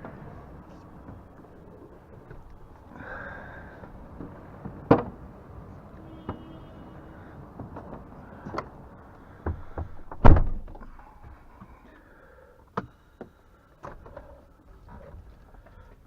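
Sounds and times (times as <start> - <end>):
heavy door thunk: 9.4 - 10.8
knocks and clicks in truck cab: 9.4 - 10.9.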